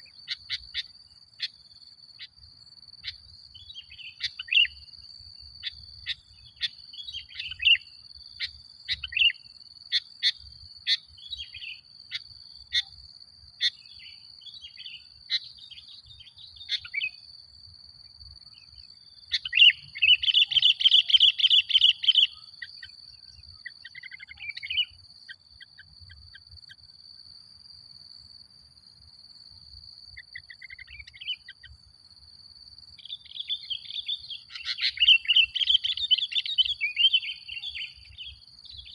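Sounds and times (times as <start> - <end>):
bird chirping and chattering: 14.7 - 17.2, 19.3 - 22.9, 33.1 - 38.0.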